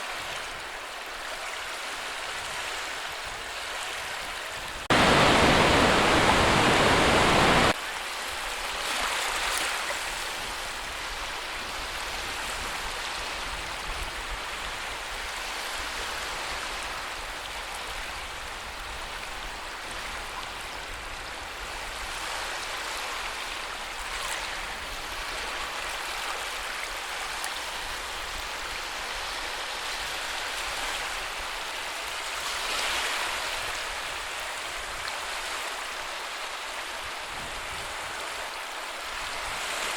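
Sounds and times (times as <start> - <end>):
sea surf washing in: 4.7 - 7.8.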